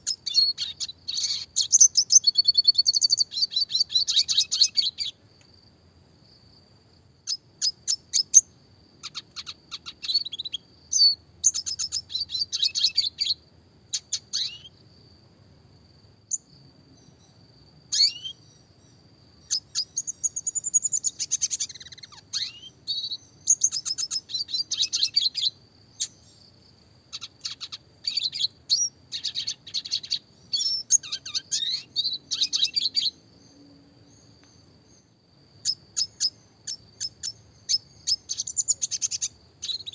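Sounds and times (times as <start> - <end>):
bird twittering trills: 0.0 - 5.2, 7.2 - 14.8, 16.3 - 26.5, 27.1 - 39.9.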